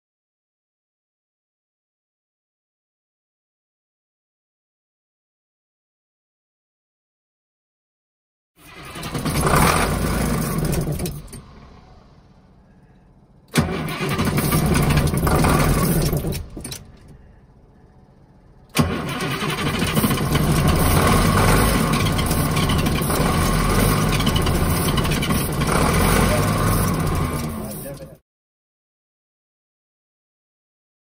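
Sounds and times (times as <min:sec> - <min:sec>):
diesel engine cranking: 0:08.6 - 0:28.2
diesel engine running: 0:08.6 - 0:28.2.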